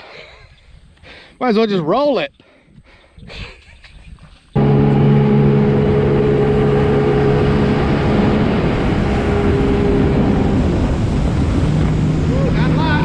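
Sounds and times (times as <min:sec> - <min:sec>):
jet ski engine humming: 0:04.6 - 0:13.0
wind and water rushing: 0:04.6 - 0:13.0.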